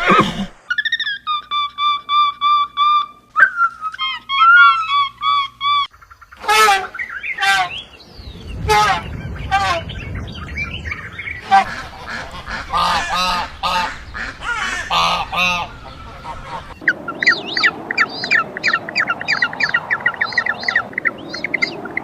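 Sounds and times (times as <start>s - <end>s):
small birds chirping: 3.2s - 22.0s
large bird harsh calls: 4.0s - 22.0s.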